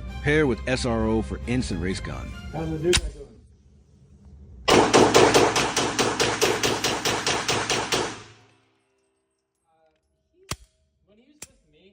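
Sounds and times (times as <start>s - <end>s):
pistol firing rapid shots: 4.7s - 8.5s.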